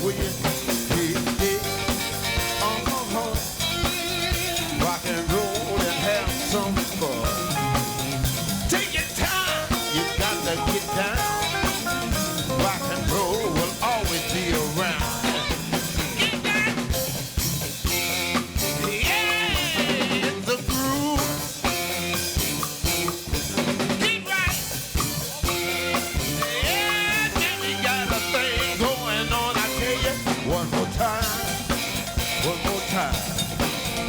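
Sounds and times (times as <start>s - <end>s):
person singing: 0.0s - 16.9s, 18.5s - 21.8s, 23.0s - 33.8s
drum kit snare and rimshots: 0.0s - 34.0s
live rock and roll band: 0.0s - 34.0s
lead guitar bending notes: 9.5s - 13.6s.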